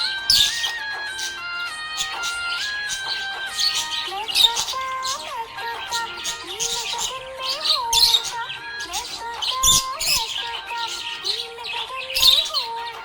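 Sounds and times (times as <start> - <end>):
background music: 0.0 - 13.0
budgerigar chirping: 0.0 - 13.0.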